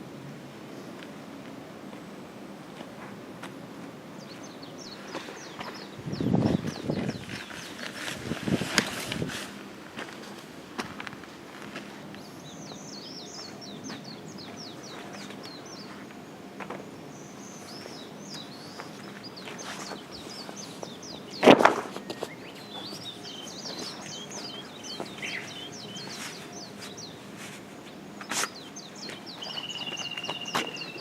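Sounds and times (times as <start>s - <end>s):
outdoor background noise: 0.0s - 31.0s
small birds chirping: 4.2s - 9.2s, 11.7s - 31.0s.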